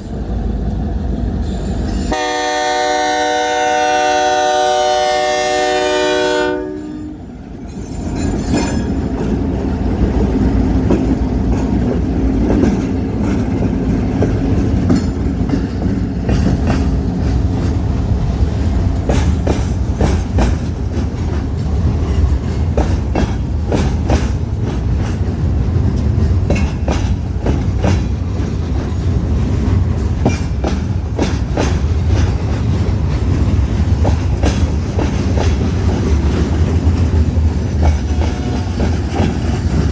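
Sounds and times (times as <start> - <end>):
freight train cars rumbling: 0.0 - 39.9
diesel train horn: 2.0 - 7.3
wheels clicking over rail joints: 7.5 - 39.9.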